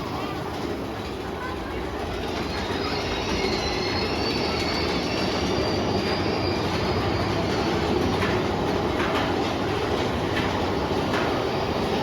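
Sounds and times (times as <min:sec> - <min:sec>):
coaster cars rumbling on track: 0:00.0 - 0:12.0
high wheel squeal: 0:02.2 - 0:07.9.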